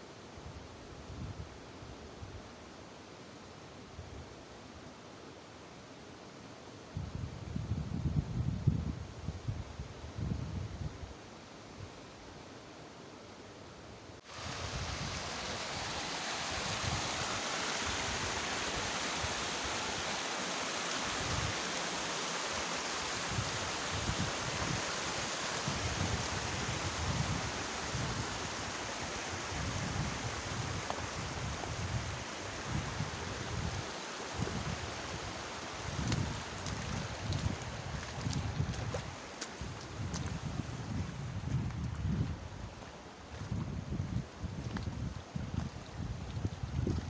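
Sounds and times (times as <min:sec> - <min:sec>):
wind buffeting microphone: 0:14.4 - 0:19.5, 0:25.6 - 0:33.8, 0:34.4 - 0:47.0.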